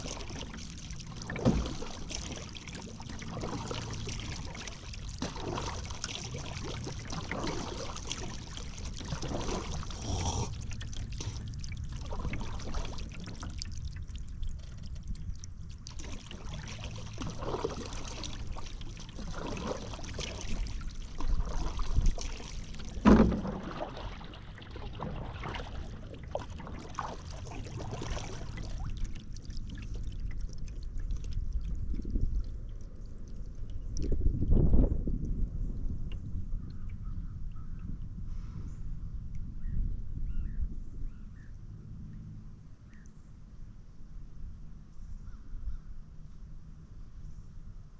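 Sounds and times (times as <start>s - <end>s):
paddle strokes in water: 0.0s - 32.4s
water trickling off paddle: 0.0s - 35.3s.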